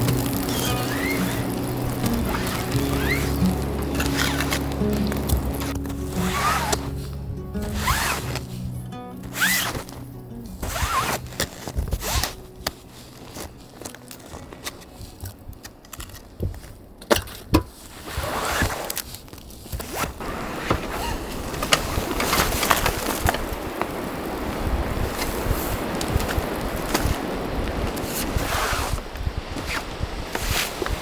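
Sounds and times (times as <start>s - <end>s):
strong wind hissing: 0.0s - 13.8s, 20.2s - 31.0s
gear being handled: 0.0s - 24.0s.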